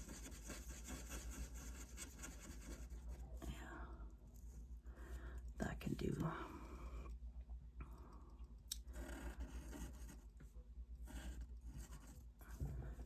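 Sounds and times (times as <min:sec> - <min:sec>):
pen scratching on paper: 0:00.0 - 0:03.0, 0:08.9 - 0:10.3, 0:11.0 - 0:12.2
steady low hum: 0:00.0 - 0:13.0.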